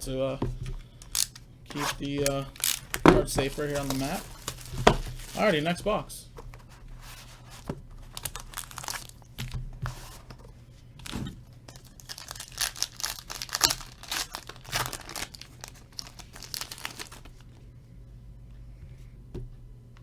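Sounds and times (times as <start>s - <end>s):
packaging tearing and crinkling: 1.1s - 5.7s, 8.1s - 9.3s, 11.0s - 17.4s.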